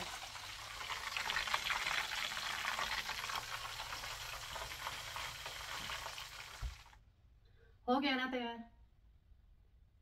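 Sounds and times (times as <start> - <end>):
chicken frying in hot oil: 0.0 - 7.0.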